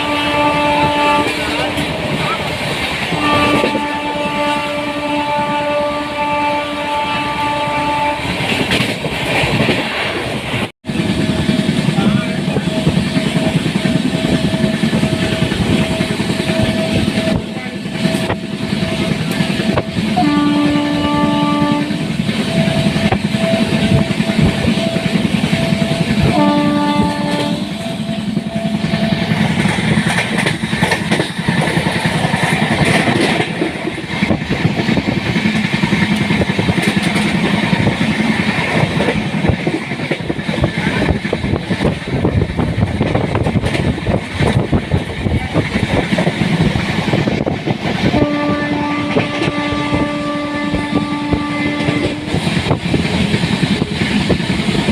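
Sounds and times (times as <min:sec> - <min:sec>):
locomotive horn blasts: 0:00.0 - 0:02.2, 0:03.1 - 0:08.6, 0:12.4 - 0:29.7, 0:48.0 - 0:52.5
train wheels clattering over rails: 0:08.2 - 0:54.9.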